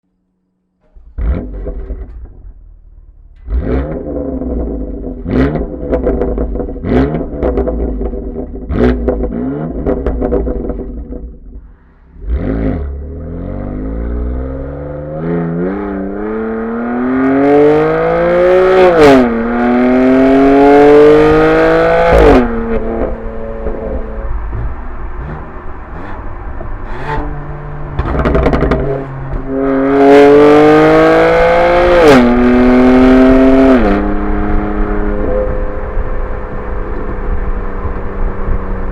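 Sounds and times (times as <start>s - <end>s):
exhaust pops and bangs: 0.8s - 11.7s, 21.2s - 27.3s, 27.9s - 30.9s
car engine revving: 0.9s - 38.9s.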